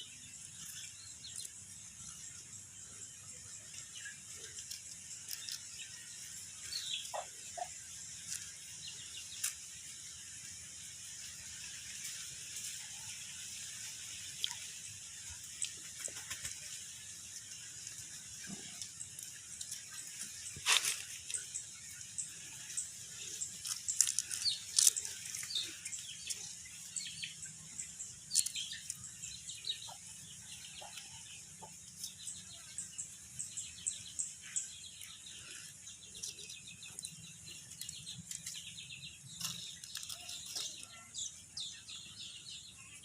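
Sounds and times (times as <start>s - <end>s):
small birds chirping: 0.0s - 43.0s
rustling: 18.8s - 26.3s.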